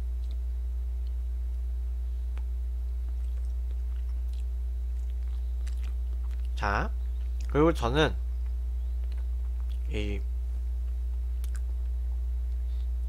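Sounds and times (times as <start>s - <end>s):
steady low hum: 0.0s - 13.0s
faint chewing: 2.3s - 7.6s, 8.4s - 9.9s, 10.5s - 13.0s.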